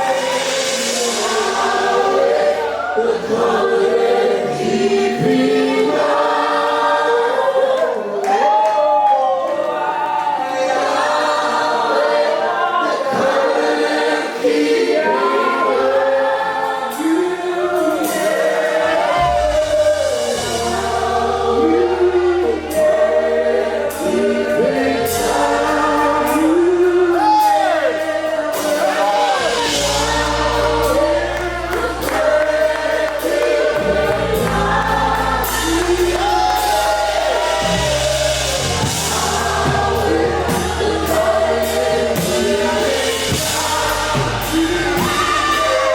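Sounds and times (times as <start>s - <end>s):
group of voices singing: 0.0s - 45.9s
sustained bass line: 19.0s - 45.9s.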